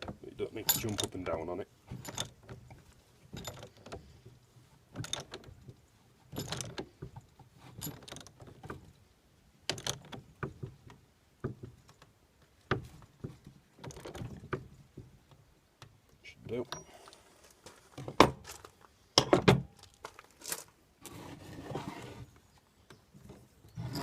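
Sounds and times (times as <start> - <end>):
spanner metal clicks and clunks: 4.9 - 8.9, 9.7 - 12.1.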